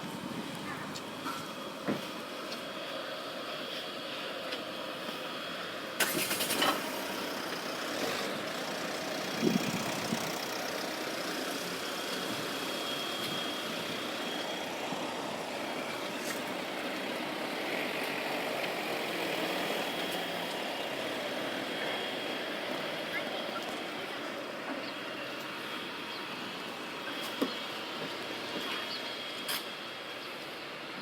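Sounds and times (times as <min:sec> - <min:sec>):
mechanical running noise: 0:06.0 - 0:29.4.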